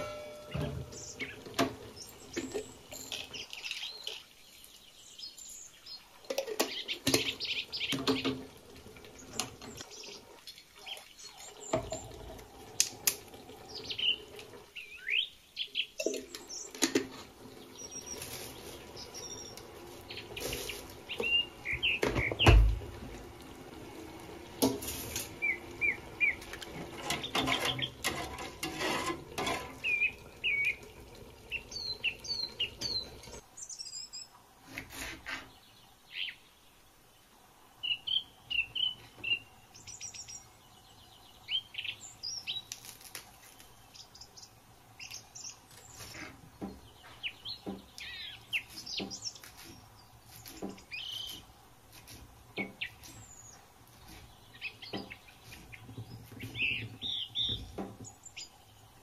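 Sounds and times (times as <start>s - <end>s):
small birds chirping: 0.0s - 22.8s, 24.1s - 28.1s, 29.7s - 34.4s, 35.3s - 59.0s
knocks and clatters: 26.4s - 29.9s, 54.9s - 58.2s.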